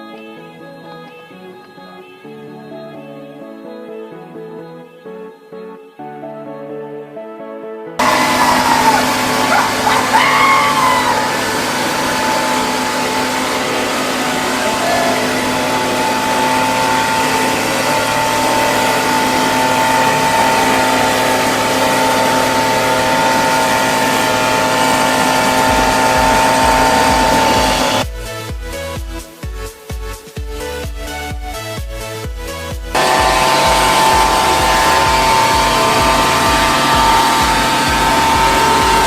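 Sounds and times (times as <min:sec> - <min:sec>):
leaf blower rushing air and whine: 0:08.0 - 0:28.1, 0:33.0 - 0:39.0
music with a beat: 0:25.6 - 0:39.0.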